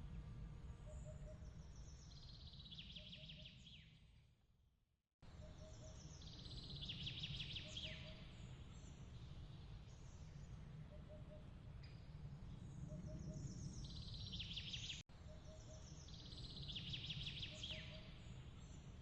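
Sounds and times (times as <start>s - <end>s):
low steady rumble: 0.0s - 2.7s.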